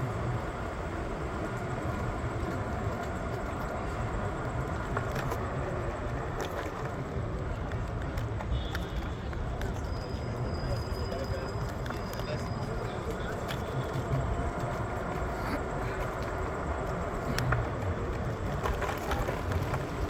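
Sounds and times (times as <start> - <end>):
faint clicks and squeaks: 6.2 - 16.4.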